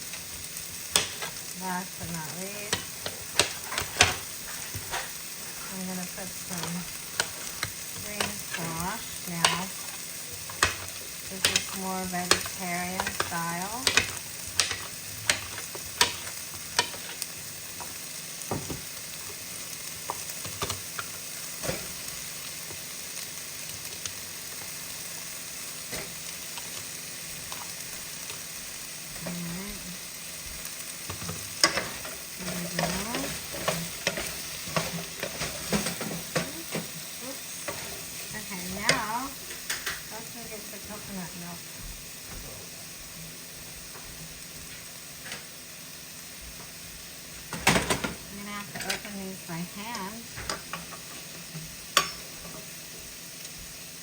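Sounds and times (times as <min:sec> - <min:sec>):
food sizzling in a pot: 0:00.0 - 0:54.0
utensil scraping a pot: 0:02.6 - 0:05.8, 0:06.4 - 0:17.3.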